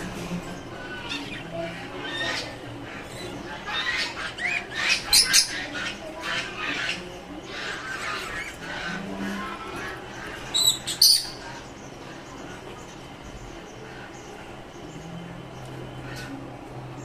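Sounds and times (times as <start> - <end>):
small birds chattering: 0.0 - 17.0
shrill bird squawks: 10.5 - 11.6.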